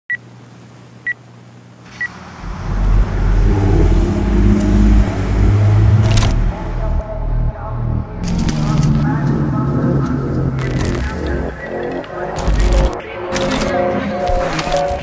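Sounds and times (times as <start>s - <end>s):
car engine revving: 2.1s - 13.0s
sharp crackle: 10.6s - 13.7s.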